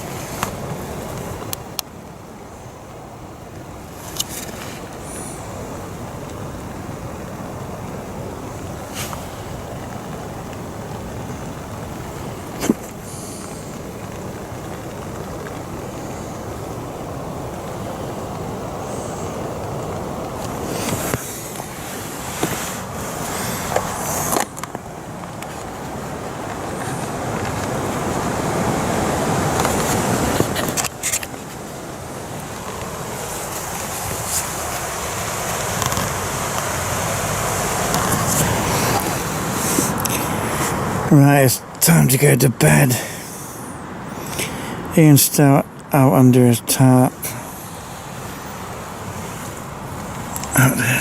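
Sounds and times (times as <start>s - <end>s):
rain falling in woodland: 0.0s - 51.0s.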